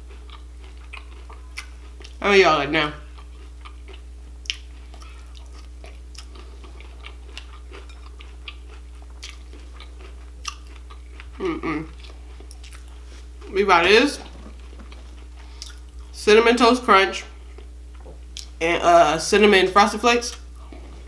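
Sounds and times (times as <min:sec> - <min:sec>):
chewing and crunching cereal: 0:00.0 - 0:13.5, 0:14.2 - 0:16.2, 0:17.2 - 0:18.6
short vocal sound: 0:11.4 - 0:11.9.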